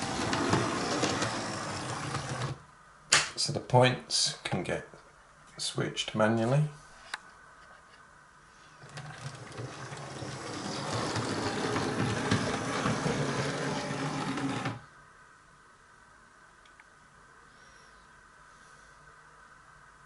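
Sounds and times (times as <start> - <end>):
model train motor whirring: 0.0 - 2.6, 8.8 - 14.8.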